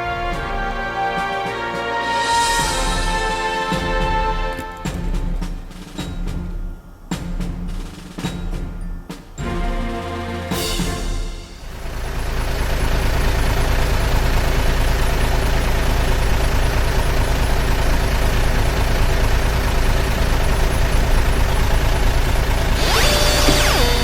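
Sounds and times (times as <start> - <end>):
truck engine rumble: 11.6 - 24.0
brief gliding tone: 22.8 - 24.0.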